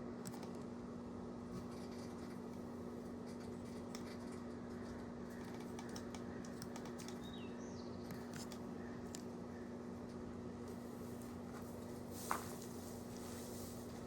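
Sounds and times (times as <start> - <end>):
microwave oven humming: 0.0 - 14.0
bird chirping: 7.0 - 9.7.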